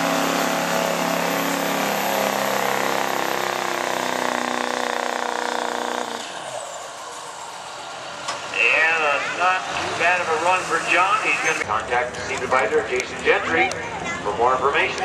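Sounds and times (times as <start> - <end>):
pickup engine running at high revs: 0.0 - 6.9.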